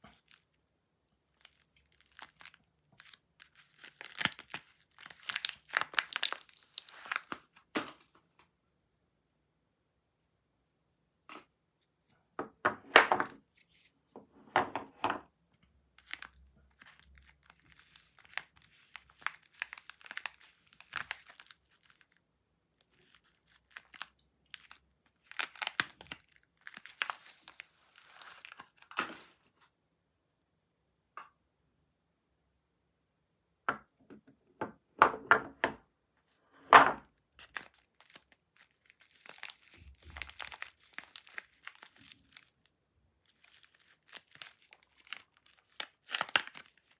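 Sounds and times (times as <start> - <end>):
wrapping crinkling and tearing: 0.0 - 0.6, 1.2 - 7.7, 16.0 - 29.4, 37.4 - 46.9.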